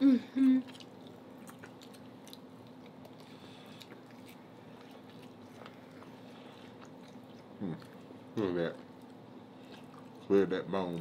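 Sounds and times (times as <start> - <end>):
people chewing and smacking: 0.0 - 11.0
steady low hum: 0.0 - 11.0.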